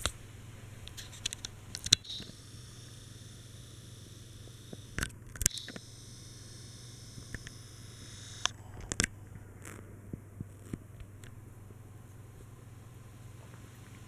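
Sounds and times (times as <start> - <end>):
ceiling fan humming: 0.0 - 14.0
sharp clicks and knocks: 0.8 - 11.4.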